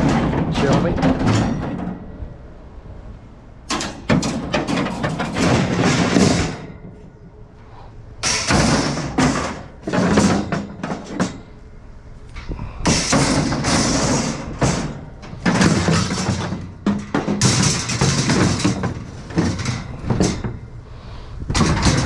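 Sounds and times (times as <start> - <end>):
knocks and thuds of items: 0.0 - 2.1, 3.7 - 7.0, 8.2 - 11.5, 12.5 - 20.7, 21.5 - 22.0.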